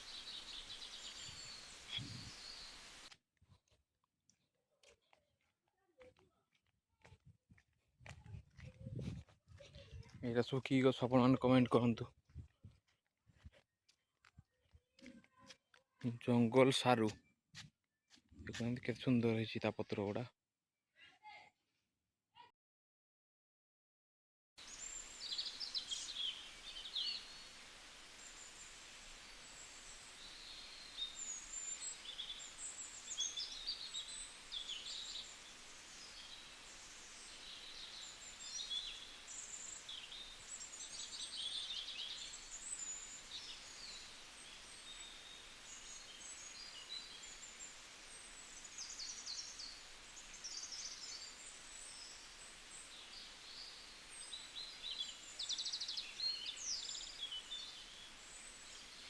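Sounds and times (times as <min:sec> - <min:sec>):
background hiss: 0:00.0 - 0:03.2, 0:24.6 - 0:59.0
wild birds chirping: 0:00.0 - 0:03.2, 0:24.6 - 0:59.0.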